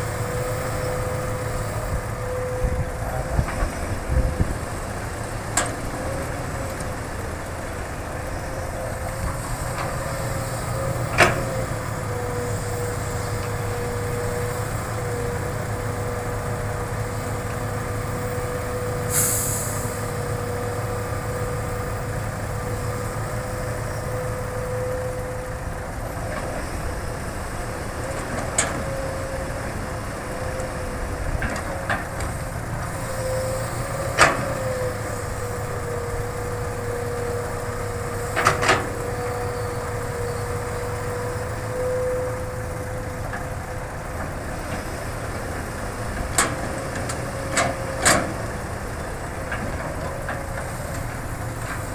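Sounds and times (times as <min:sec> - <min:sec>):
excavator diesel engine whining: 0:00.0 - 0:51.9
brief hiss: 0:19.1 - 0:20.0.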